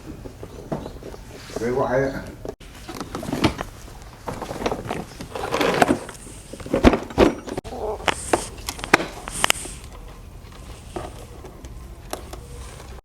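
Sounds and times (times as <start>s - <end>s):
parts being handled: 2.4s - 13.0s.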